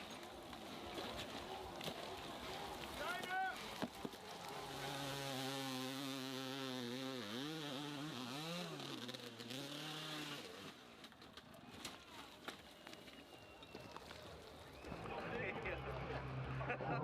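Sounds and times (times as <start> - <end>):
motorcycle engine at high revs: 4.4 - 10.8.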